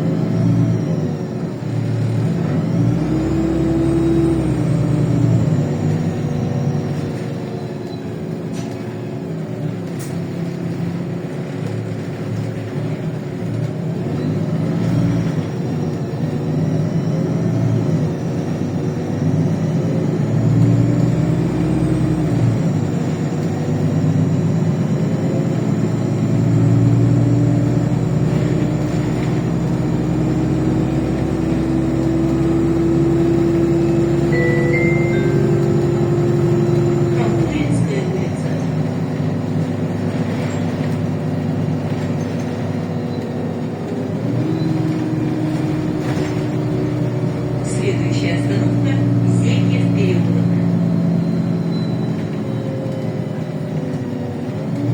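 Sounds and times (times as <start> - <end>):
bus engine hum: 0.0 - 54.9
road noise: 0.0 - 54.9
whine: 33.8 - 38.6.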